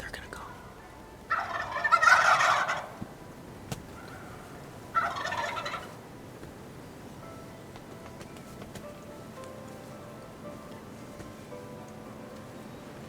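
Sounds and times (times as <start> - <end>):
turkey gobbling: 0.5 - 3.1, 3.9 - 6.0.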